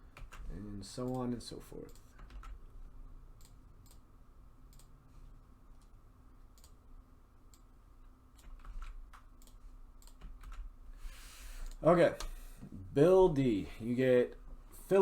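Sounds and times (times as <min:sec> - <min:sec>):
keyboard keys clicking: 0:08.4 - 0:10.6.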